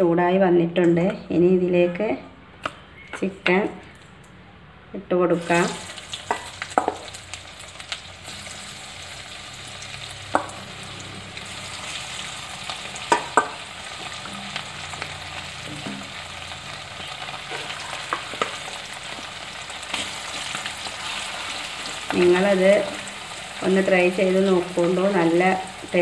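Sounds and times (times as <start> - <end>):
chicken sizzling in hot oil: 5.4 - 26.0.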